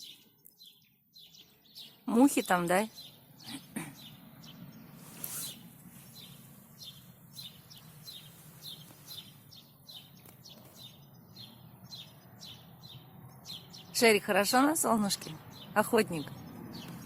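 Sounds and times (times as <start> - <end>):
small songbirds chirping: 0.0 - 17.0
brief rustle: 5.0 - 6.4.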